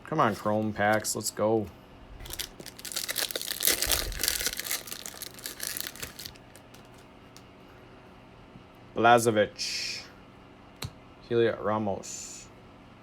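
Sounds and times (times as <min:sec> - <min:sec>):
foil wrapper tearing and crinkling: 0:02.2 - 0:07.0.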